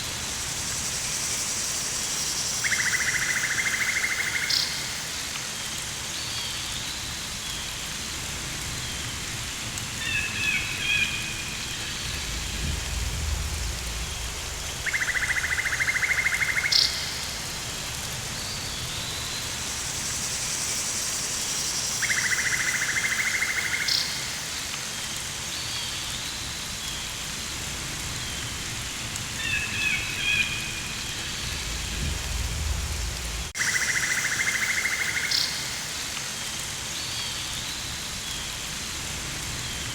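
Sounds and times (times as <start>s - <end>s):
rain hissing: 6.9s - 22.9s, 23.5s - 39.9s
low rumble: 12.0s - 15.4s, 31.2s - 33.6s
insects buzzing calls: 31.0s - 36.2s.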